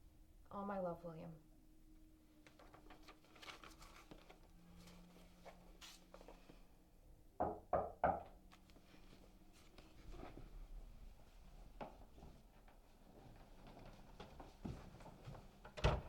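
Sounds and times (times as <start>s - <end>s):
knocks on a door: 7.4s - 8.4s.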